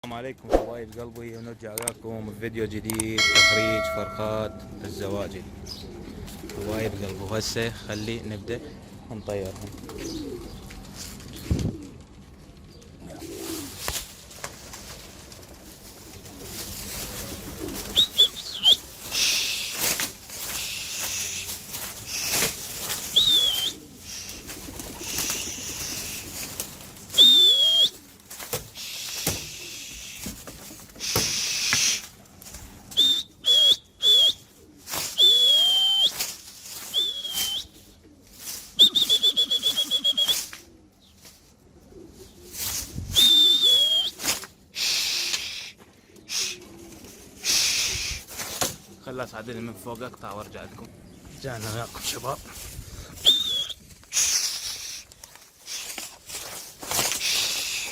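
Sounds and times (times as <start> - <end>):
pigeon cooing: 3.2 - 7.2, 8.3 - 9.0, 9.6 - 14.3, 14.9 - 49.1, 51.8 - 57.9
pigeons flapping wings: 6.2 - 7.2, 9.4 - 40.7, 42.4 - 45.6, 46.3 - 49.0, 52.0 - 57.9
person whistling: 23.2 - 23.7, 27.2 - 27.9, 33.0 - 34.4, 35.2 - 36.1, 36.9 - 37.7, 38.8 - 40.4, 43.2 - 44.2, 53.2 - 53.8.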